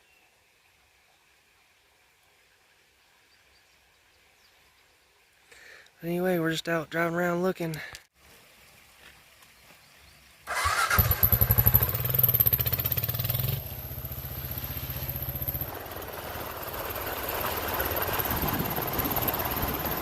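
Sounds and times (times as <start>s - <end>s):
motorcycle engine starting and running: 10.5s - 20.0s.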